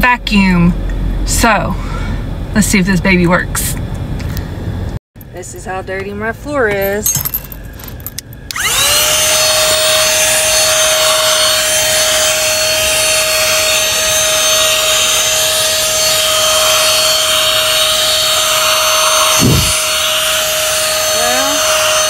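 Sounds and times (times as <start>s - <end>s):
car vacuum whining: 8.5s - 22.0s.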